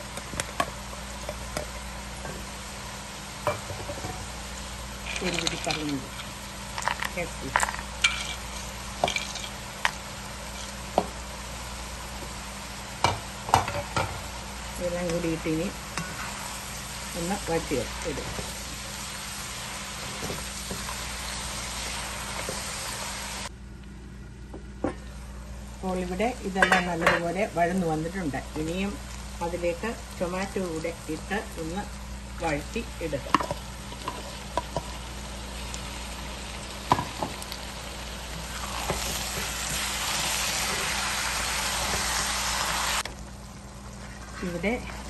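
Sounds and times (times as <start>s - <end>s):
food sizzling in a frying pan: 0.0s - 23.5s, 25.1s - 45.0s
spatula stirring in a pan: 8.0s - 9.6s.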